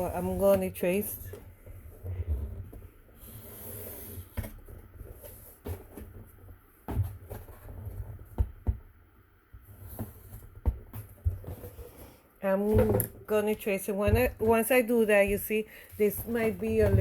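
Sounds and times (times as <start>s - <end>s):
cardboard box being handled: 9.8s - 17.0s.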